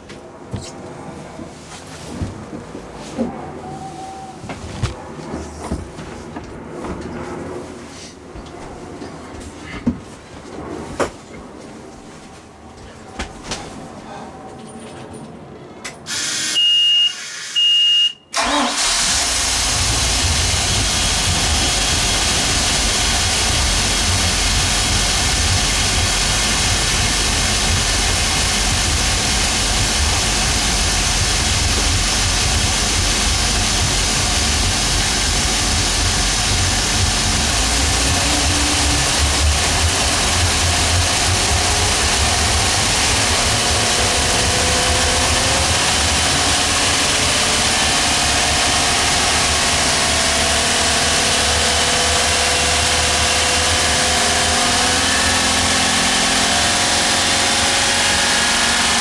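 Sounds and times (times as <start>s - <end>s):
short high beeps: 16.6s - 18.3s
boat engine starting and idling: 18.3s - 59.0s.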